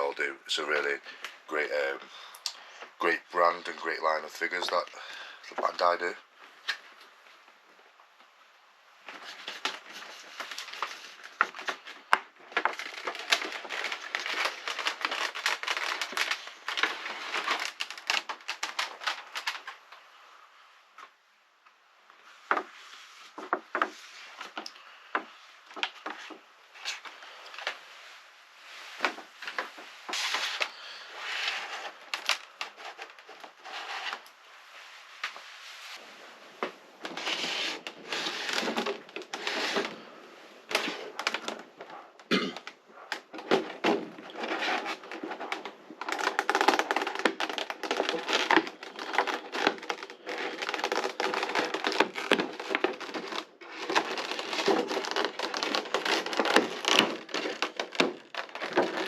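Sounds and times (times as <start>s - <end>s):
packaging crinkling and rustling: 9.0s - 20.0s, 28.7s - 34.4s, 36.0s - 59.0s.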